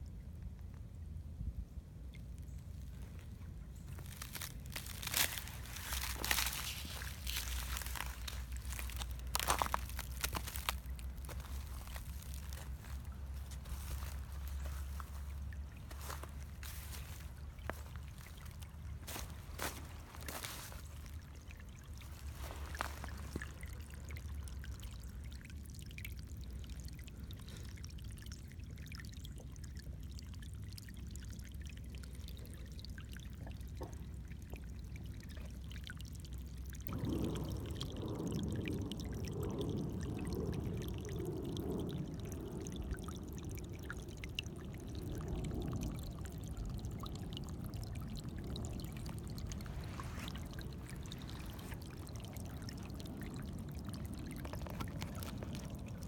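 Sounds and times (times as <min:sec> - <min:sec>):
rushing water: 0:02.6 - 0:56.0
low rumble: 0:02.7 - 0:25.2.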